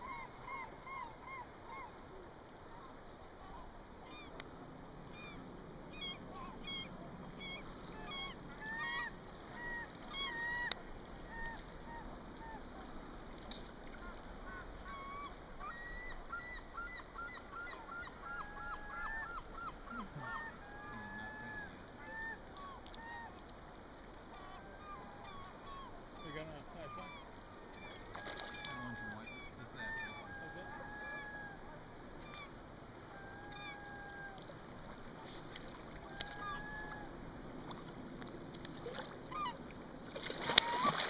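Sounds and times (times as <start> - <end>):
birds calling: 5.1 - 12.8, 13.9 - 23.4, 24.3 - 37.1.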